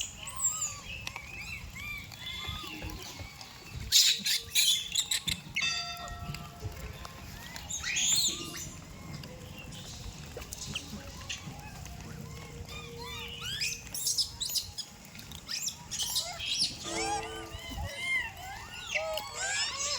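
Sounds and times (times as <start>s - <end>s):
high-pitched animal chirps: 15.5s - 19.9s
rising animal squeal: 16.0s - 19.9s.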